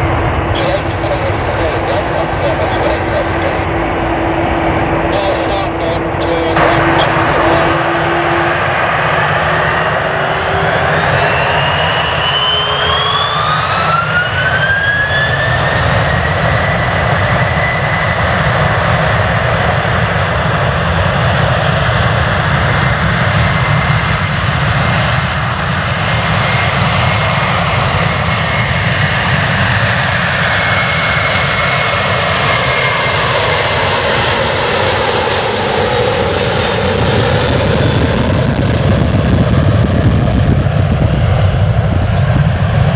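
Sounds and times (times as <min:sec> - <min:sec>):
jet engines roaring with whine: 0:00.0 - 0:42.9.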